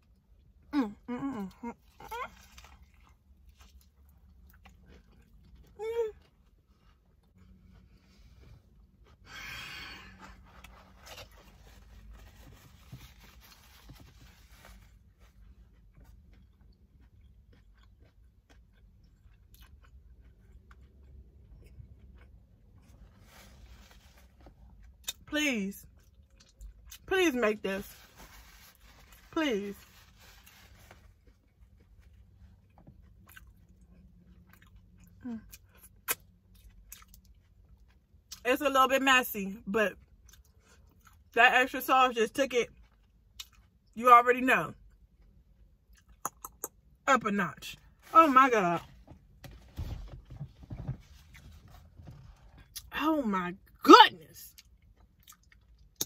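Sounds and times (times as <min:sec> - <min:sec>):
person chewing: 0:01.4 - 0:08.0, 0:15.3 - 0:23.1, 0:26.0 - 0:27.0, 0:30.4 - 0:38.4, 0:42.8 - 0:43.9, 0:44.9 - 0:46.9, 0:54.6 - 0:56.0.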